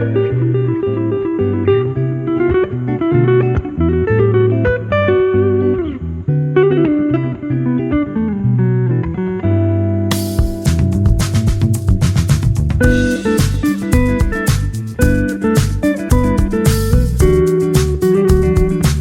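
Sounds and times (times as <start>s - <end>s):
plucked guitar: 0.0s - 19.0s
held low bass notes: 10.1s - 19.0s.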